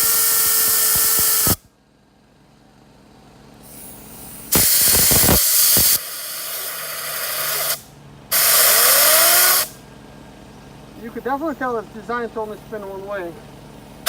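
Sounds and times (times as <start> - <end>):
compressed air blasting: 0.0 - 1.6, 3.6 - 9.8.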